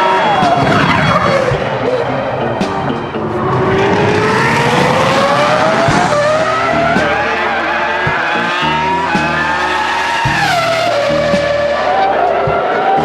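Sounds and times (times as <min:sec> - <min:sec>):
racing car engine at high revs: 0:00.1 - 0:13.0.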